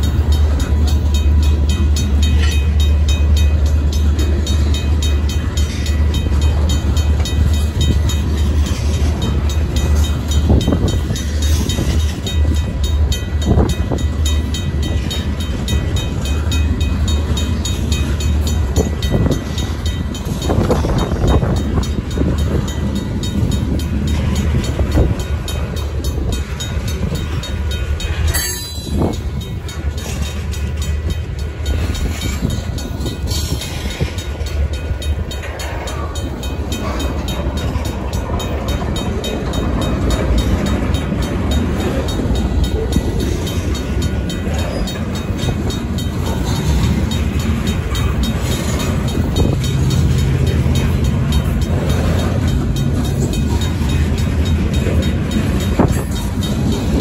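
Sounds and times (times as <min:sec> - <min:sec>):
freight train wheels rumbling on rails: 0:00.0 - 0:57.0
mechanical crossing bell ringing: 0:00.0 - 0:57.0.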